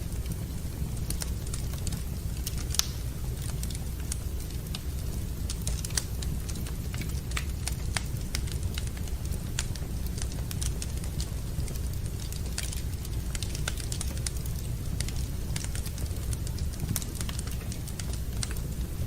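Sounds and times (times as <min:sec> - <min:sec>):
low fire rumble: 0:00.0 - 0:19.0
wood fire crackling and popping: 0:00.0 - 0:19.0.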